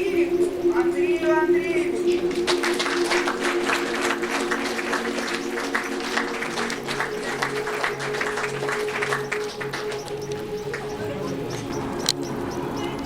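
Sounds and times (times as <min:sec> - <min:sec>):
ambient music with held notes: 0:00.0 - 0:13.0
audience applauding: 0:02.2 - 0:12.0.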